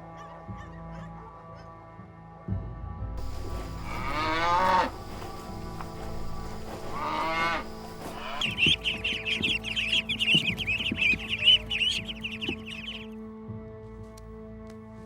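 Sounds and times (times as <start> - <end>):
cow mooing: 3.2 - 8.4
chicks peeping: 3.2 - 13.1.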